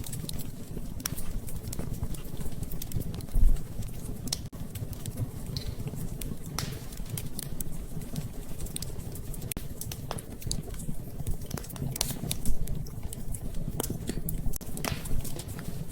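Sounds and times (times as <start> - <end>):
wood fire crackling: 0.0 - 15.9.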